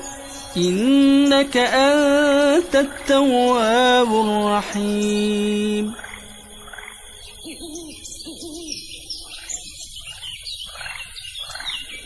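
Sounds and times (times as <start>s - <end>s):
small birds chirping: 0.0s - 12.0s
bird hooting call: 4.6s - 10.3s.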